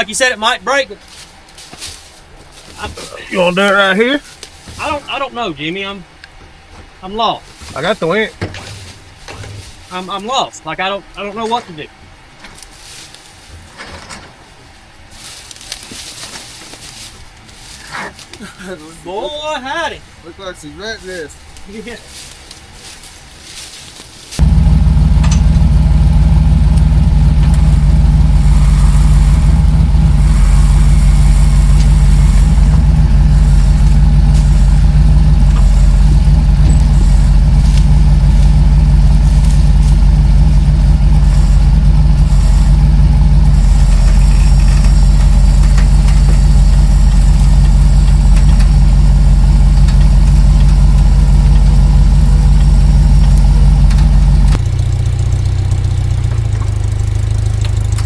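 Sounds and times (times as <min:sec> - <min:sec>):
engine running at low revs: 0:07.5 - 0:10.3, 0:21.1 - 0:58.0.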